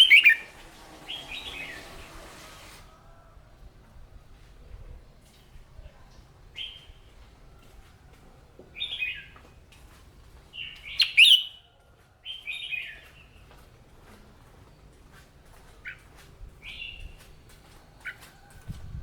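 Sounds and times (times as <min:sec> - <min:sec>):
bulbul singing: 0:00.0 - 0:01.9, 0:10.6 - 0:11.6.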